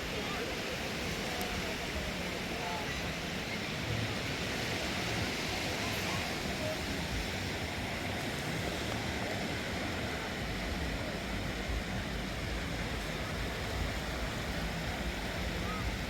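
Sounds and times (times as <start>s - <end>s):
sea surf on sandy beach: 0.0s - 16.0s
low uneven rumble: 3.6s - 16.0s.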